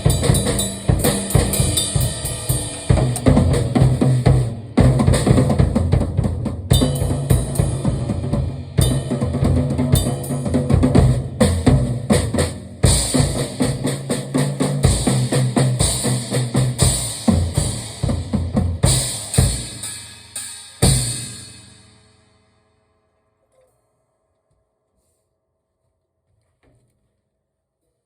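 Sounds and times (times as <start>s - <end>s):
cymbals wash: 0.0s - 4.3s, 19.0s - 22.2s
drum kit played fast: 0.0s - 22.2s.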